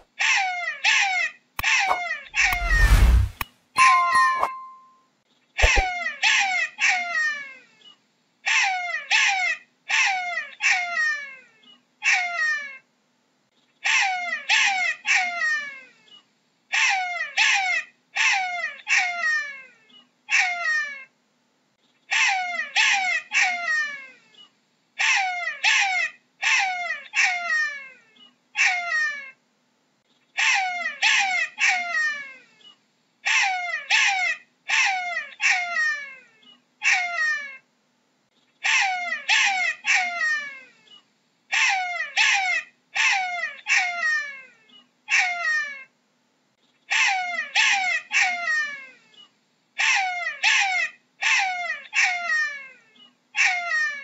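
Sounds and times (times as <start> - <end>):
jackal yelping: 41.5 - 44.0.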